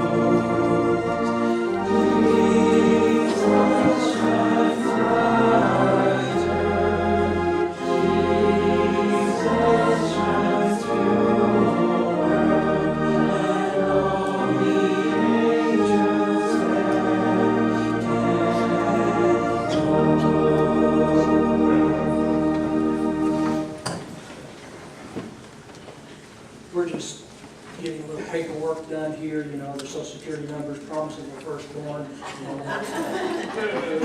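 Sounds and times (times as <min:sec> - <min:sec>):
choir singing: 0:00.0 - 0:23.8
organ chords: 0:00.0 - 0:23.9.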